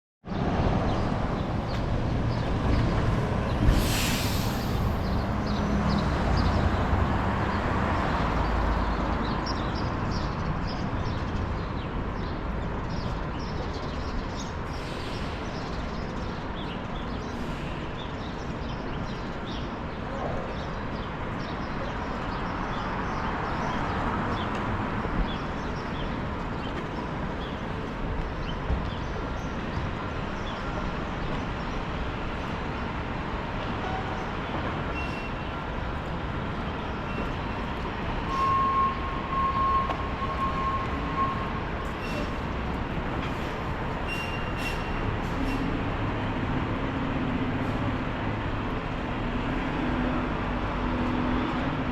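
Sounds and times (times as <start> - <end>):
brief loud hiss: 3.7 - 5.0.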